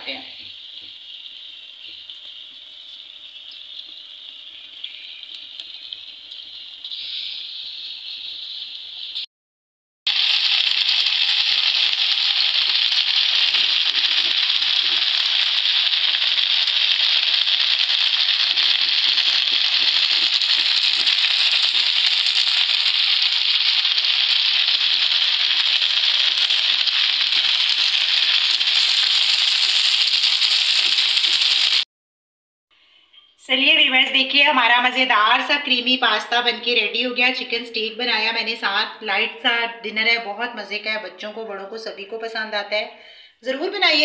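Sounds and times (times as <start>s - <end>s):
meat sizzling in a pan: 10.1s - 31.8s.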